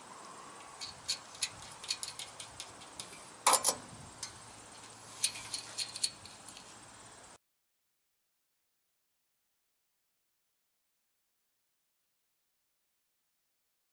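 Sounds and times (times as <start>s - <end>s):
metal clatter: 0.6s - 6.7s
metal hardware clicking and tapping: 0.6s - 6.7s.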